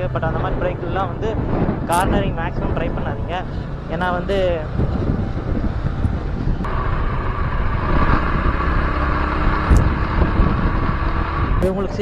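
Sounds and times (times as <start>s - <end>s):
wind noise on microphone: 0.0s - 12.0s
motorcycle engine running: 3.2s - 12.0s.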